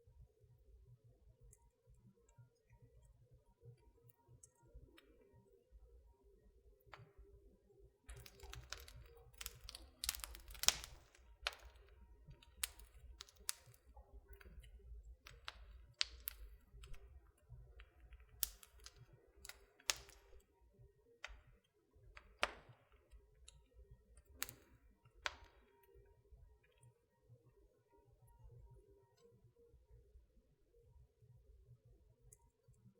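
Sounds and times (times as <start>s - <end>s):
wood fire crackling: 8.0s - 20.6s, 21.2s - 26.1s.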